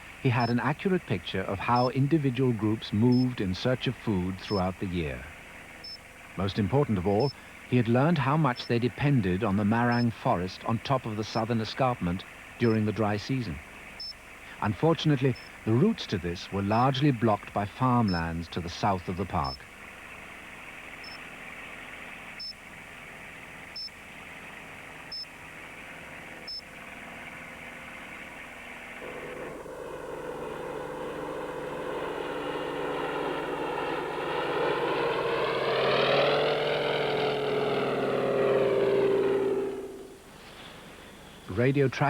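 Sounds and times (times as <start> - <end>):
light aircraft passing: 0.0 - 41.2
steady engine drone: 0.0 - 42.0
receiver bleeping: 0.3 - 0.8, 1.7 - 2.0, 3.0 - 3.5, 9.8 - 10.3, 16.6 - 19.7.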